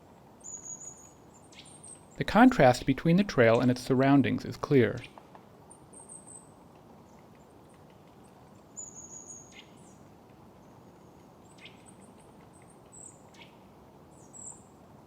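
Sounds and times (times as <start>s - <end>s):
faint steady hiss: 0.0s - 15.0s
small birds high-pitched calls: 0.4s - 2.2s, 8.6s - 10.0s, 10.6s - 14.7s.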